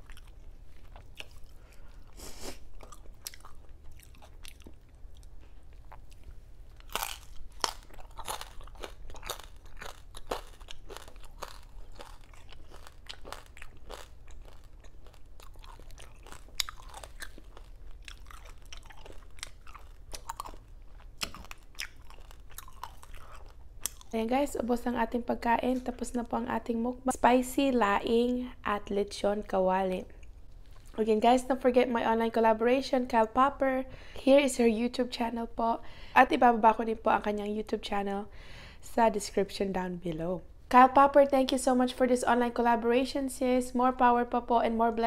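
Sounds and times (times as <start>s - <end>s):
person chewing crunchy food: 0.0s - 24.2s.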